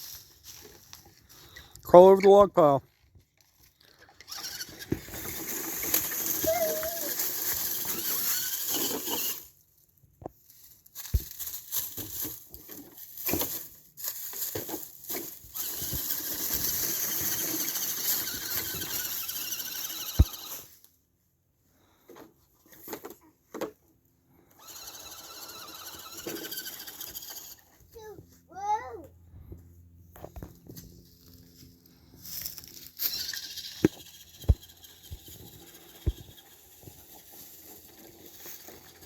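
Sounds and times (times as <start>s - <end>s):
rc car motor and gears whining: 3.9s - 9.6s, 11.8s - 20.9s, 24.3s - 27.7s, 32.2s - 39.0s
rc car knocking over logs: 4.2s - 9.5s, 14.4s - 20.7s, 24.6s - 27.6s, 33.0s - 39.0s.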